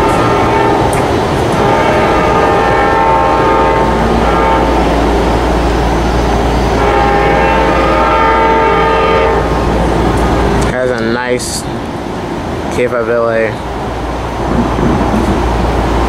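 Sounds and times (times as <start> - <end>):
locomotive air horn blasts: 0.0 - 5.5, 6.7 - 9.7
train rumbling past: 0.0 - 16.0.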